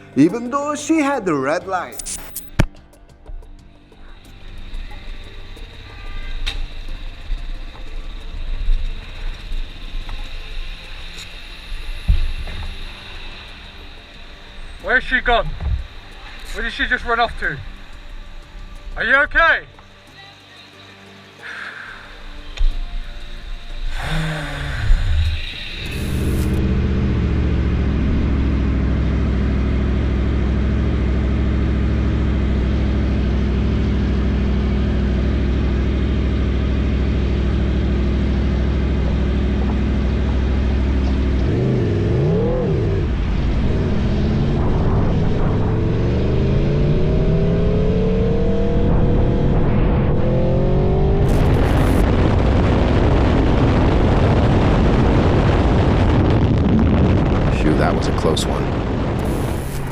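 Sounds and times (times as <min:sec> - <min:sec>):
motorcycle engine accelerating: 0:25.8 - 0:59.9.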